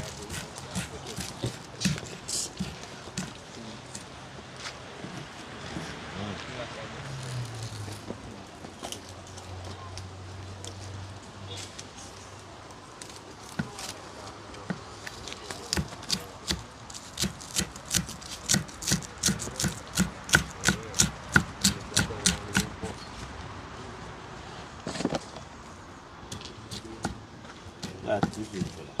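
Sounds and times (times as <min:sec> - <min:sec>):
knife chopping on cutting board: 0:00.0 - 0:03.4, 0:15.7 - 0:22.8, 0:27.8 - 0:28.8.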